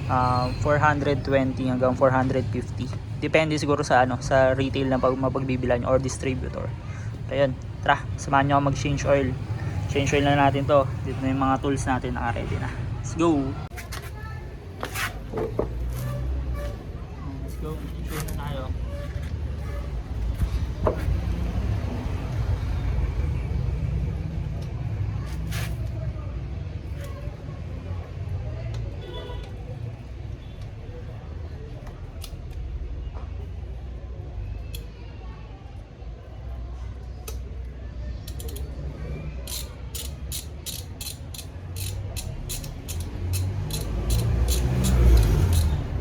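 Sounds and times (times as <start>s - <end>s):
ratchet wrench clicking: 38.2s - 46.0s.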